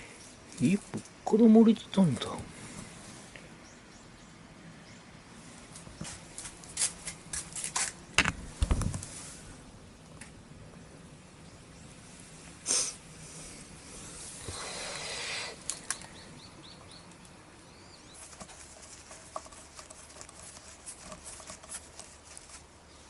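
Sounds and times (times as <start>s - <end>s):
air hiss: 12.6s - 15.8s.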